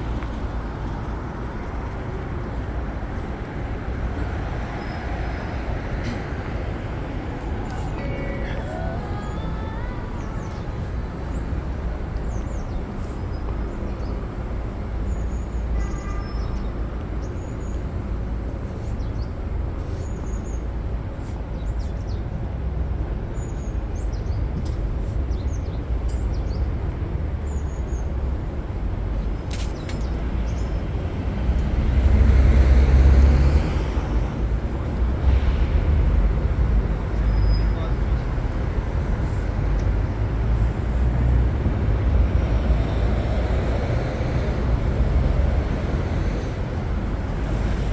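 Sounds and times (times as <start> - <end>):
traffic rumble: 0.0 - 47.9
heavy vehicle passing close: 30.8 - 47.9.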